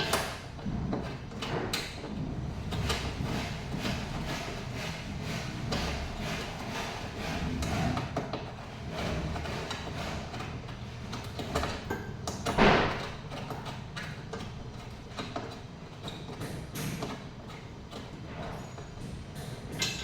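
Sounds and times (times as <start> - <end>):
tools clicking and knocking: 9.4 - 20.0.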